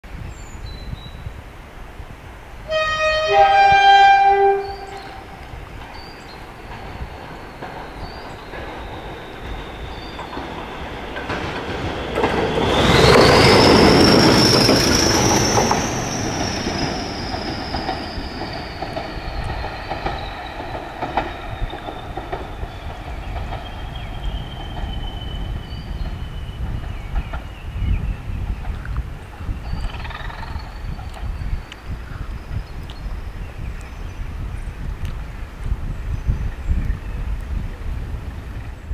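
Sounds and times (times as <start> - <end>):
diesel locomotive engine passing: 2.5 - 31.5
two-tone locomotive horn: 2.7 - 5.4.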